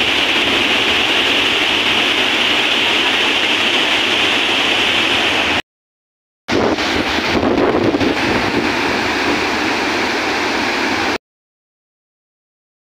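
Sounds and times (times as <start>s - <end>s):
waterfall rushing: 0.0s - 5.6s, 6.5s - 11.2s.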